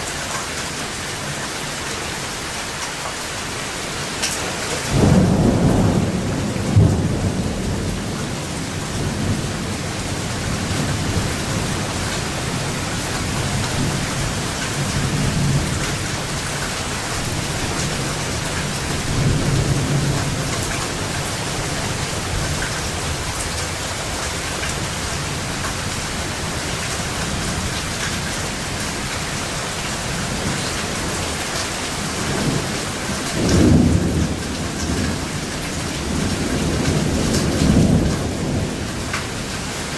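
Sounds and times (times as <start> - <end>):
steady rain falling: 0.0 - 39.9
thunder rolling: 4.8 - 16.6, 32.1 - 39.4.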